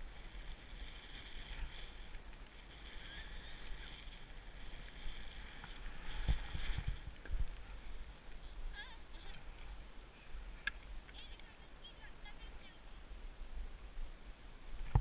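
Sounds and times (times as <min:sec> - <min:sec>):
skis hissing through snow: 0:00.0 - 0:10.6
wind rumbling on microphone: 0:00.0 - 0:15.0.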